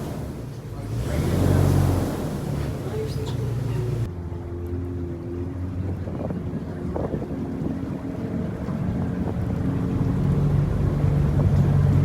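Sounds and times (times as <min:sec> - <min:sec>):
airboat engine and propeller: 0:00.0 - 0:12.0
wind buffeting microphone: 0:05.6 - 0:12.0.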